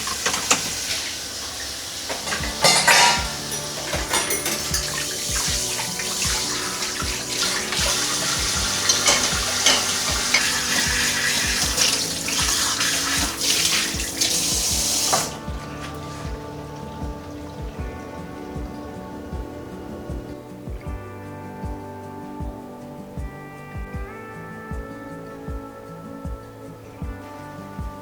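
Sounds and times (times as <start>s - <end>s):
tap water splashing into sink: 0.0s - 16.0s
soft background music: 0.0s - 28.0s.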